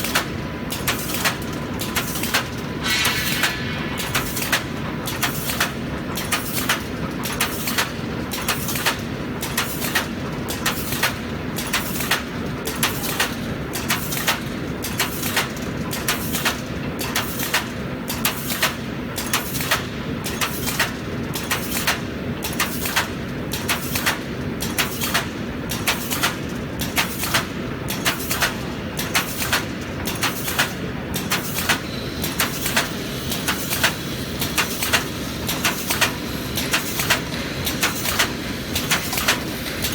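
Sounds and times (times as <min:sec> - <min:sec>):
steady mechanical hum: 0:00.0 - 0:39.9
sharp metallic clacks: 0:00.1 - 0:10.0.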